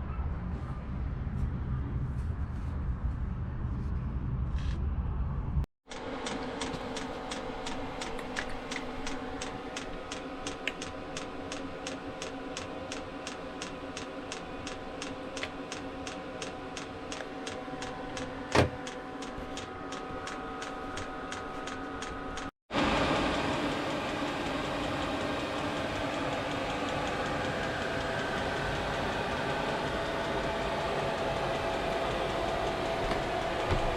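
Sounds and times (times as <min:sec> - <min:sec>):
regular ticking of fuel pump: 0:05.9 - 0:22.1
heater blower hum: 0:05.9 - 0:33.9.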